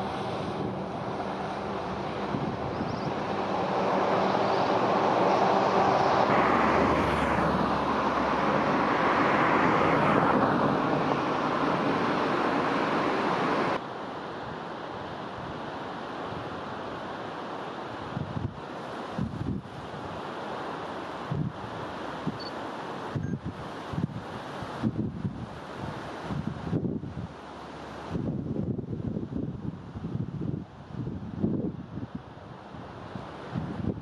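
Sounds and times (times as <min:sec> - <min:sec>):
diesel railcar passing: 0:00.0 - 0:13.8
outdoor rushing noise: 0:00.0 - 0:13.8.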